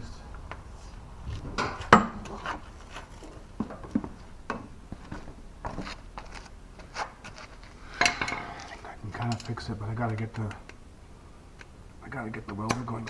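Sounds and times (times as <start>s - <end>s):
tools clicking and knocking: 8.0s - 10.8s.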